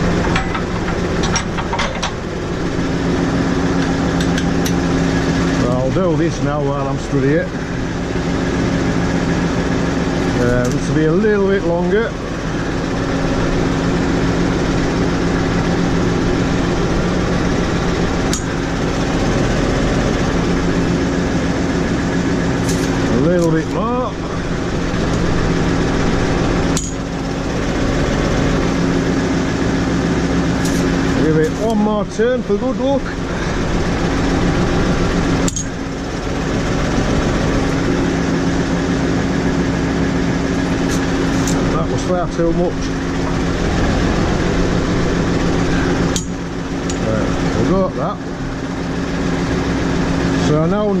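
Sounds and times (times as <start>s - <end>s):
tractor engine idling: 0.0s - 51.0s
sharp metallic click: 18.3s - 18.5s, 26.8s - 27.0s, 35.4s - 35.8s, 46.1s - 47.0s.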